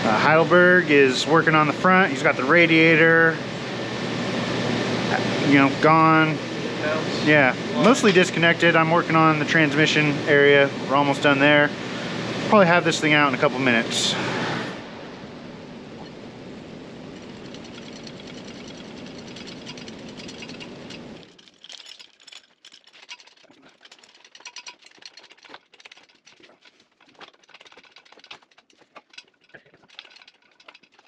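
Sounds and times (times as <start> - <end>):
mechanical hiss-like hum: 0.0 - 17.3.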